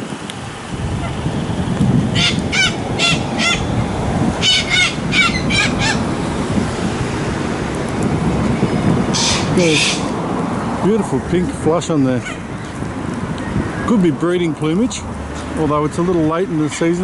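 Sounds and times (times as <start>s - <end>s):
road traffic rumble: 0.0s - 17.0s
birds giving harsh calls: 2.1s - 6.4s, 9.1s - 10.2s, 12.0s - 12.8s.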